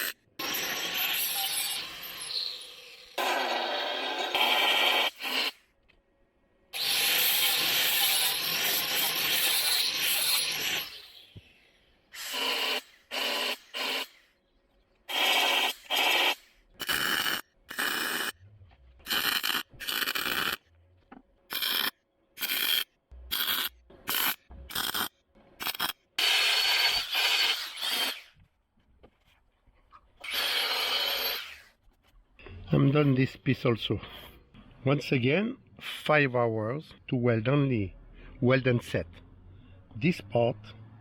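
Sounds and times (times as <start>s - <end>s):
welding bursts: 6.8s - 11.1s, 12.2s - 14.2s, 15.1s - 18.4s, 19.0s - 20.6s, 21.5s - 28.4s.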